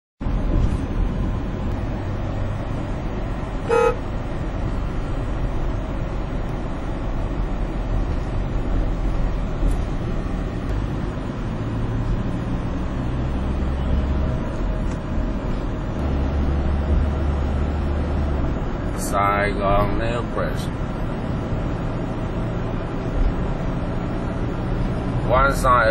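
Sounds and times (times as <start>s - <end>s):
highway traffic noise: 0.2s - 25.9s
vehicle horn toot: 3.6s - 4.1s.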